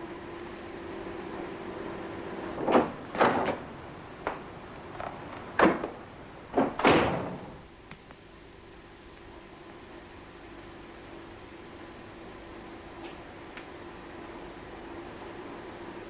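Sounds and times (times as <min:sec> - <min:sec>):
steady low hum: 0:00.0 - 0:16.0
knocks and thumps: 0:05.0 - 0:07.5.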